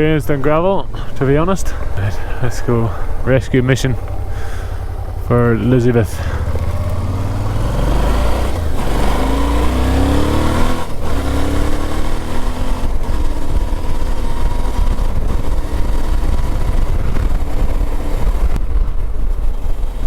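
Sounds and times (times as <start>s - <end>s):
motorcycle accelerating on gravel: 0.0s - 20.0s.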